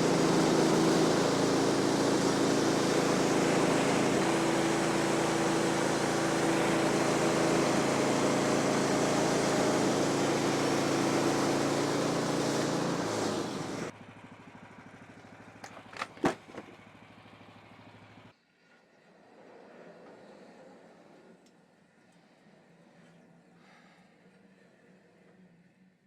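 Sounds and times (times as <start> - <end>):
bandsaw blade cutting log: 0.0 - 13.9
sawmill engine running: 0.0 - 18.3.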